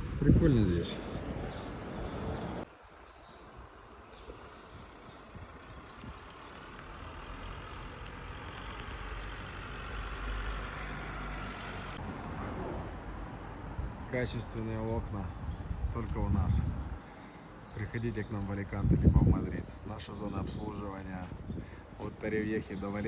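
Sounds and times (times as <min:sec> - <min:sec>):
motor vehicle rumble: 0:00.0 - 0:02.7, 0:03.6 - 0:18.0
small birds chirping: 0:00.0 - 0:12.0, 0:13.6 - 0:23.0.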